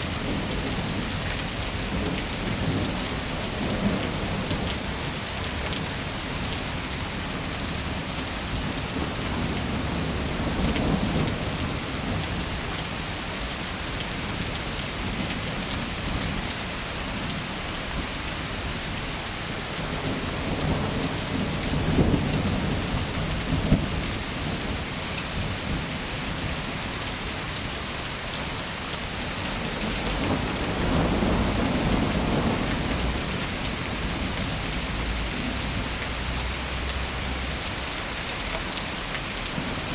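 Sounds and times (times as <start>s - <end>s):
heavy rain: 0.0s - 39.9s
thunder rumbling: 29.6s - 35.9s.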